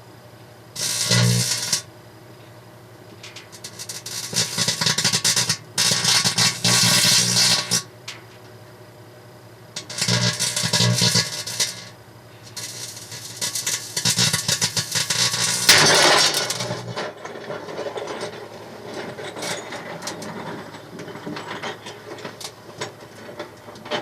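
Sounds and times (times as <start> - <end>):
microwave oven humming: 0.0 - 17.2.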